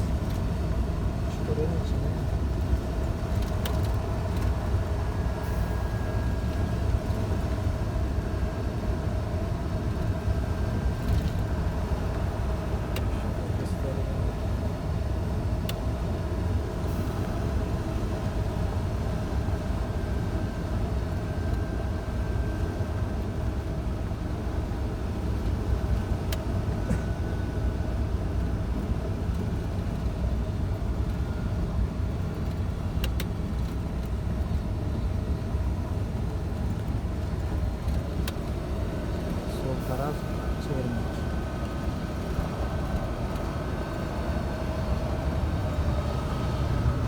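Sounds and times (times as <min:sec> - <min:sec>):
truck diesel engine drone: 0:00.0 - 0:47.0
road noise: 0:28.2 - 0:47.0.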